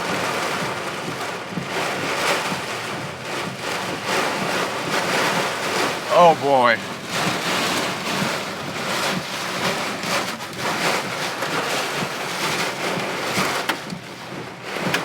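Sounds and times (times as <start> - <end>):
hailstones ticking on car: 0.0 - 15.0
heavy rain and wind on car: 0.0 - 15.0.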